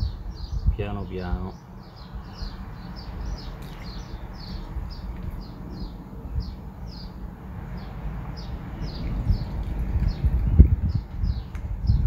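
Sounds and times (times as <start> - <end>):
steady low rumble: 0.0 - 12.0
small bird chirping: 1.4 - 7.2.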